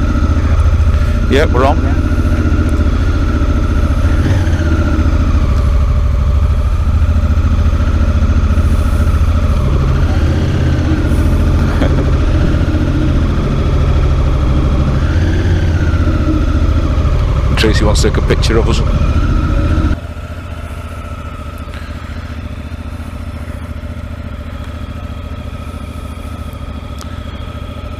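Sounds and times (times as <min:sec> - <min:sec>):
motorcycle engine idling: 0:00.0 - 0:27.9.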